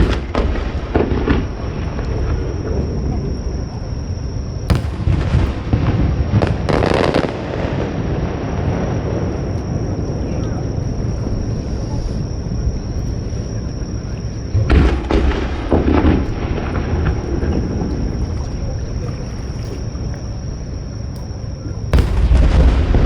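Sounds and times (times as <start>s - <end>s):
fireworks booming: 0.0s - 21.0s, 21.8s - 23.0s
steady low rumble: 0.0s - 23.0s.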